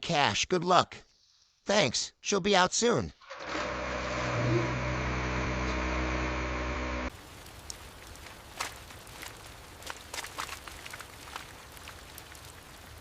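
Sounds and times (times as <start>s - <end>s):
car engine running: 3.6s - 7.1s.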